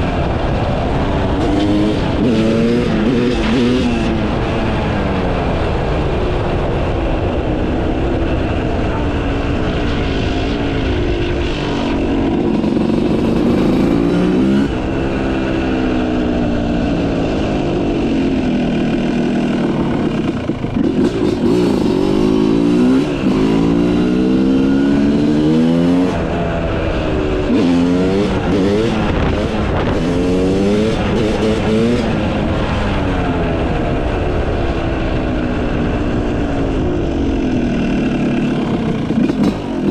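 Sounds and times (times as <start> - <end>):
dirt bike engine revving: 0.1 - 4.6, 8.9 - 33.4, 37.3 - 39.9.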